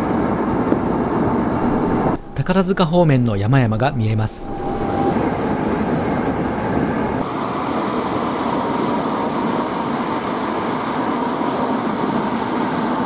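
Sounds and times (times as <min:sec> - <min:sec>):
faint steady high tone: 0:01.6 - 0:07.0.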